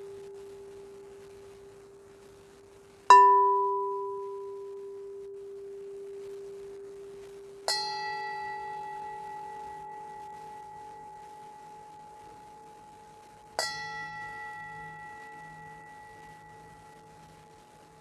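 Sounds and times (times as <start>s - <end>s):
metal instrument struck and ringing: 3.1s - 5.3s, 7.7s - 18.0s
sustained metallic tone: 3.2s - 18.0s.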